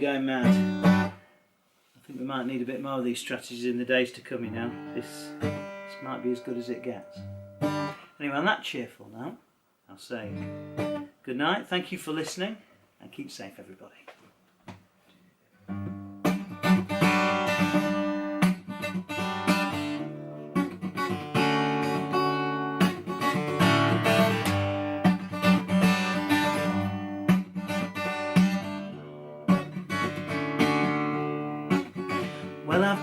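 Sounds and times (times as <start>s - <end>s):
acoustic guitar strummed and picked: 0.0s - 1.3s, 4.2s - 8.2s, 10.2s - 11.1s, 15.6s - 33.0s.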